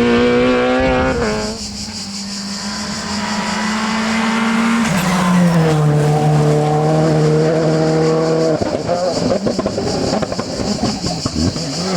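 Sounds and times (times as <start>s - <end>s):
rally car engine revving: 0.0s - 11.9s.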